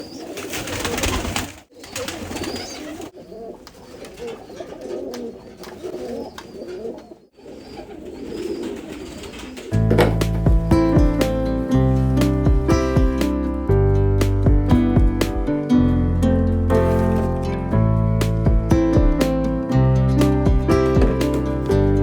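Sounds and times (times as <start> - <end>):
pigeons cooing: 0.0 - 9.8
acoustic guitar music: 9.7 - 22.0.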